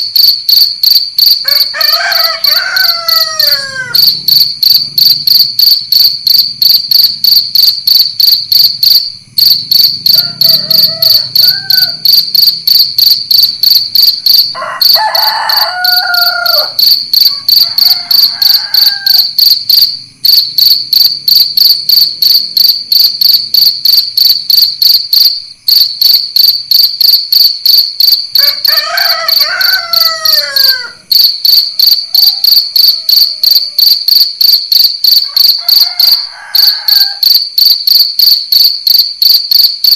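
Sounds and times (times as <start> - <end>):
crickets chirping: 0.0 - 39.9
roosters crowing: 1.4 - 5.0, 10.0 - 12.6, 14.4 - 19.4, 28.4 - 34.0, 35.2 - 37.4.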